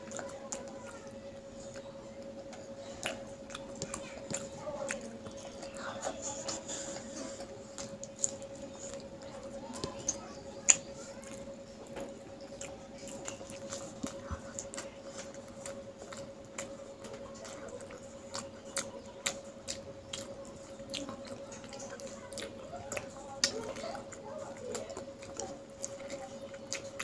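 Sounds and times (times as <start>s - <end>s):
child chewing food: 0.0s - 27.0s
faint steady hum: 0.0s - 27.0s.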